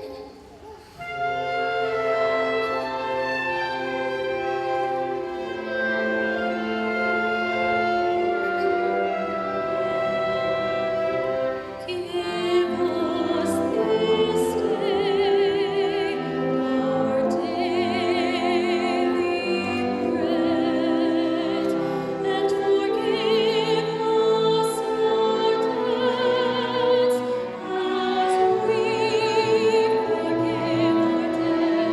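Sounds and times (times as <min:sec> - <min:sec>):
orchestral accompaniment: 0:00.0 - 0:31.9
woman singing operatically: 0:11.8 - 0:31.9.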